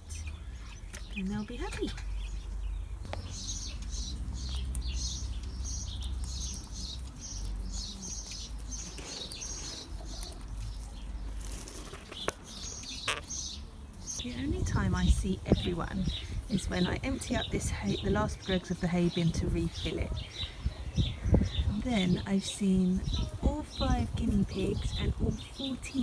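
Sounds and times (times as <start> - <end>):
hay rustling: 7.0 - 16.8
steady low rumble: 14.0 - 25.8.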